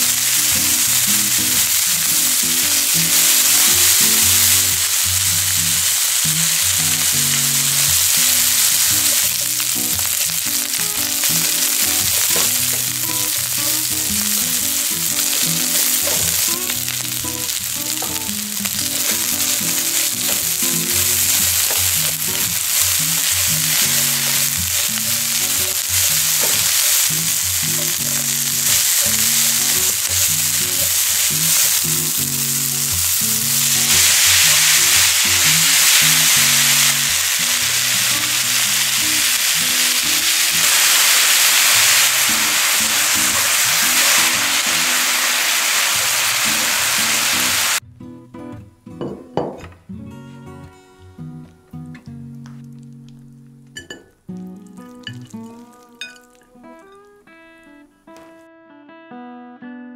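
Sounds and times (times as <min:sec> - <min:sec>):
meat sizzling in hot oil: 0:00.0 - 0:47.8
background music: 0:00.0 - 0:58.4.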